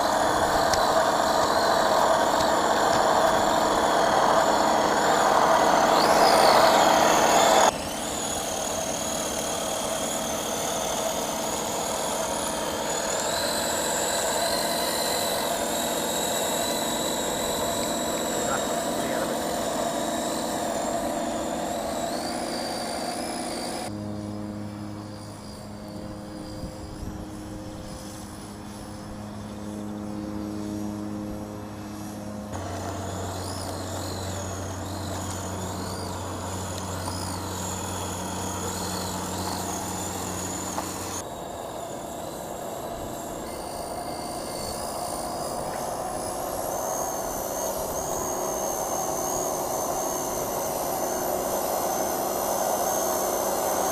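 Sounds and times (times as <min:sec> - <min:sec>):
toy truck motor whine: 0:00.0 - 0:53.9
birds chirping: 0:32.2 - 0:49.7.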